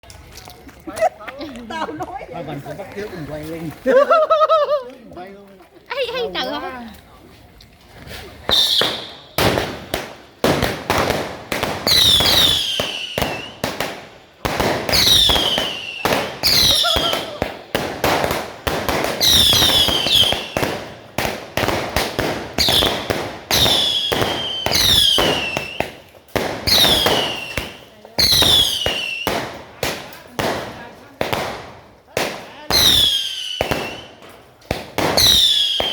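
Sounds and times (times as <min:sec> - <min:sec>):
firework bangs: 0:08.4 - 0:35.9
firework whistles falling in pitch: 0:08.5 - 0:09.3, 0:11.9 - 0:13.6, 0:22.6 - 0:25.9, 0:35.2 - 0:35.9.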